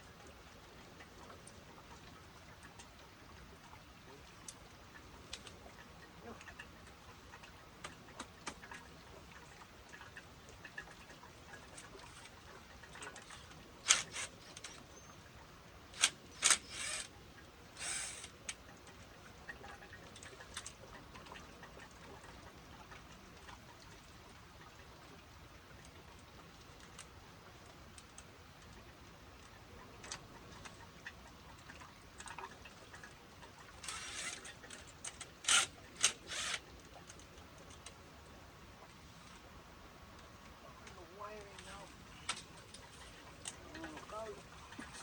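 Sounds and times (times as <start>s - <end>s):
faint tool clicks: 16.0s - 17.1s.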